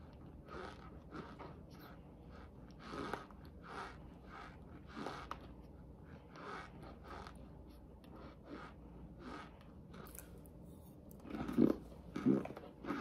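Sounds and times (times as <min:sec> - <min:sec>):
cornstarch crunching while chewed: 0:00.0 - 0:13.0.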